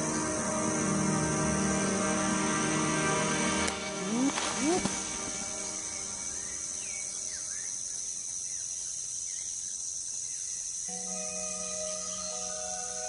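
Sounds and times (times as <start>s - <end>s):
sustained music: 0.0s - 7.7s, 10.9s - 13.0s
high-pitched insect drone: 0.0s - 9.6s, 10.7s - 13.0s
swooping calls: 0.9s - 8.4s.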